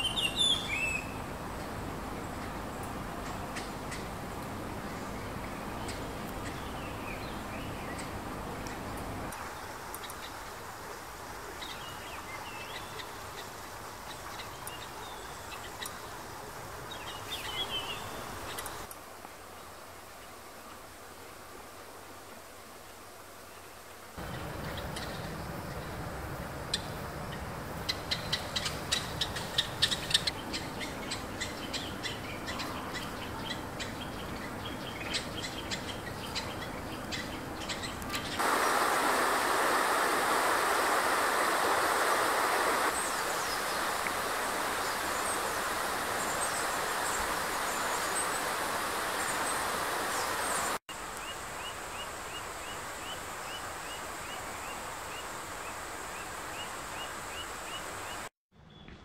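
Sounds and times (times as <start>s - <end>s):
birds calling: 0.0s - 10.4s, 24.2s - 58.9s
steady rushing noise: 38.4s - 50.8s.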